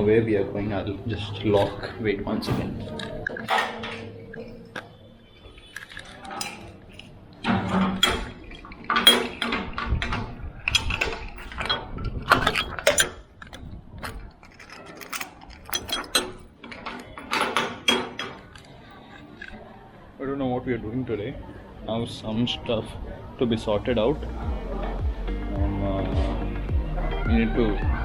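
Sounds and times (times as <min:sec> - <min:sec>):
keys rattling in a door lock: 0:02.9 - 0:19.6.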